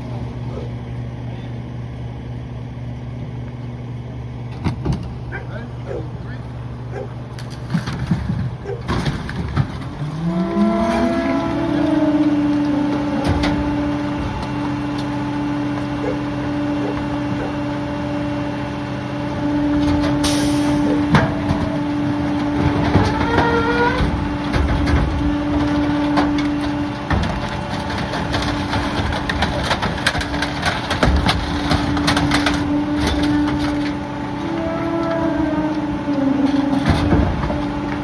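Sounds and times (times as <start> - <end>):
diesel engine humming: 0.0 - 38.0
cracking and clattering: 7.3 - 17.6, 19.4 - 38.0
squeaks: 22.6 - 26.8, 30.3 - 37.9.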